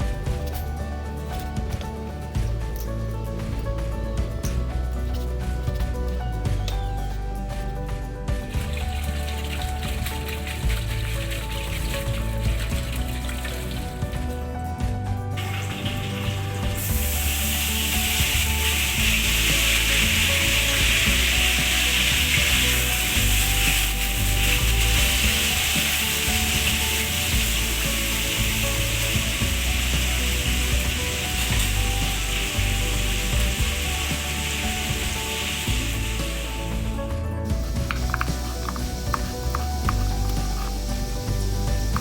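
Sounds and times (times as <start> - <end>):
food sizzling in hot oil: 8.4 - 14.5, 15.3 - 42.0.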